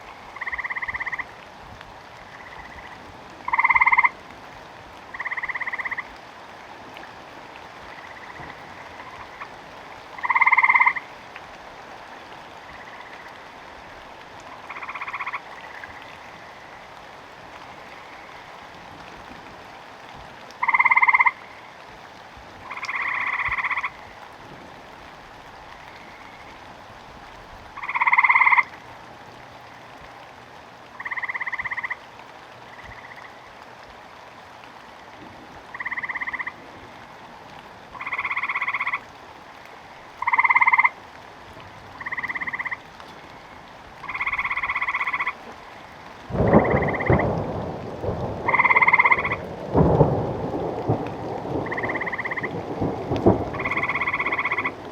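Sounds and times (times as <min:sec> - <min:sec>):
frog croaking: 0:00.0 - 0:01.4, 0:02.2 - 0:04.2, 0:05.1 - 0:06.1, 0:07.8 - 0:09.6, 0:10.2 - 0:11.1, 0:12.6 - 0:13.7, 0:14.4 - 0:16.9, 0:17.6 - 0:18.6, 0:20.6 - 0:21.8, 0:22.6 - 0:24.2, 0:25.8 - 0:26.6, 0:27.8 - 0:28.8, 0:30.9 - 0:32.0, 0:32.7 - 0:33.6, 0:35.7 - 0:36.9, 0:37.9 - 0:39.1, 0:39.8 - 0:41.0, 0:42.0 - 0:49.8, 0:51.0 - 0:54.9
rain hissing: 0:00.0 - 0:54.9
thunder rumbling: 0:46.2 - 0:54.9.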